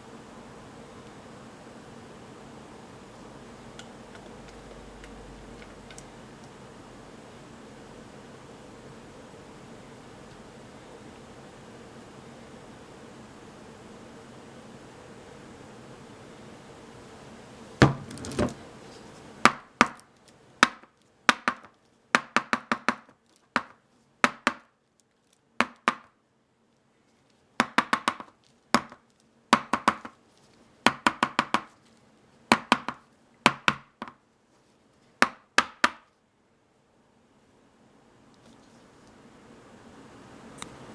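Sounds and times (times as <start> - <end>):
hard objects knocking: 17.8 - 18.6.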